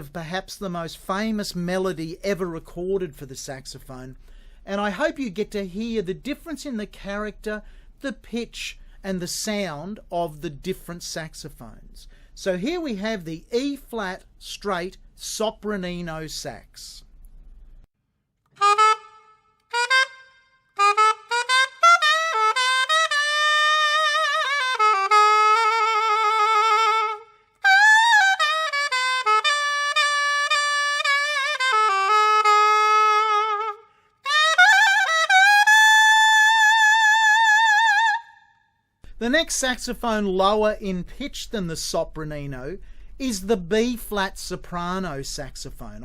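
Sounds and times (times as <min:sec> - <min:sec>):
saxophone solo melody: 0:18.6 - 0:38.5.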